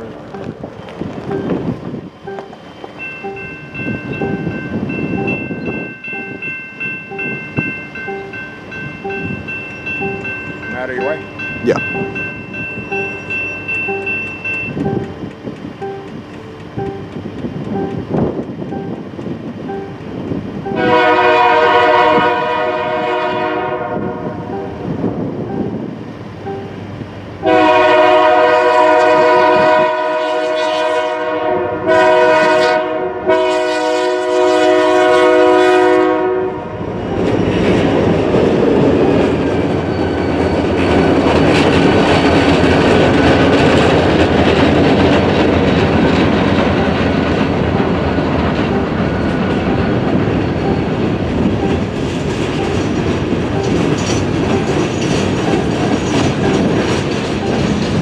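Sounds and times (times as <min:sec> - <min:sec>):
train wheels clickety-clack: 0:00.0 - 0:23.5, 0:36.9 - 0:58.0
locomotive horn chord blasts: 0:20.7 - 0:24.9, 0:27.4 - 0:37.4.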